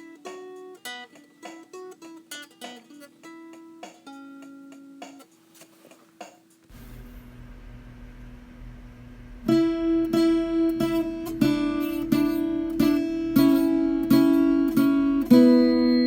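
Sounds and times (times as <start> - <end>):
acoustic guitar strumming chords: 9.4 - 16.0.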